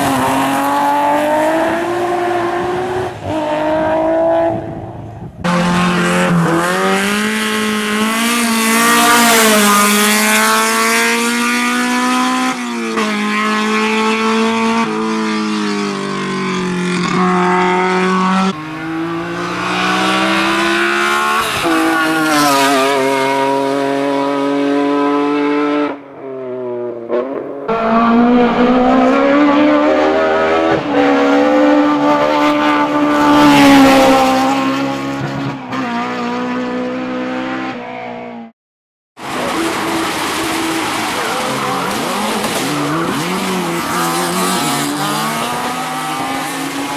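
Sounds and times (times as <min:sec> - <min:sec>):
race car engine revving: 0:00.0 - 0:38.5, 0:39.2 - 0:46.9.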